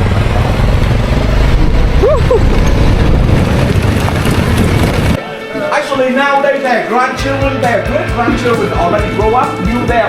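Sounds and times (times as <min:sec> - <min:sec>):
dirt bike engine rumble: 0:00.0 - 0:05.2
wind noise on microphone: 0:00.0 - 0:05.2.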